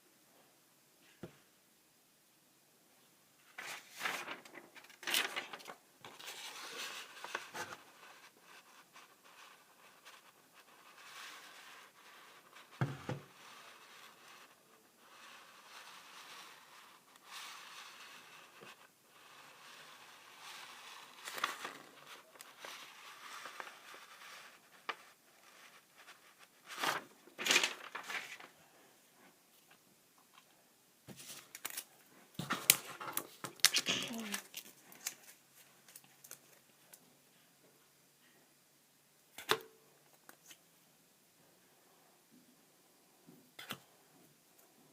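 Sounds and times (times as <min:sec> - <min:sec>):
rustling and crinkling handling noise: 0:03.4 - 0:37.5
cards rustling and clicking: 0:31.1 - 0:37.0.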